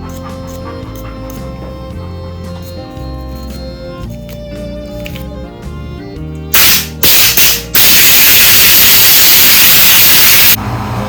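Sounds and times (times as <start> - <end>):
background music: 0.0 - 11.0
compressed air blasting: 6.6 - 10.6.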